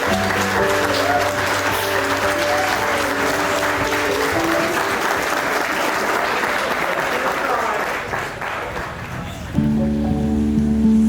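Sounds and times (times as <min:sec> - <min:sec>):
guests clapping: 0:00.0 - 0:09.6
soft background music chords: 0:09.6 - 0:11.0.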